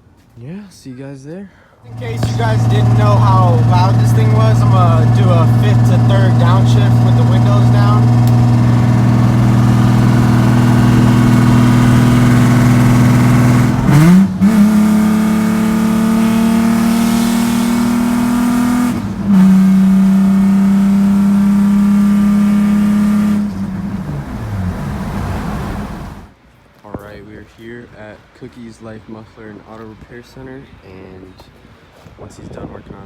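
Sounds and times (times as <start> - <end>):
loud car engine and exhaust: 1.9 - 26.3.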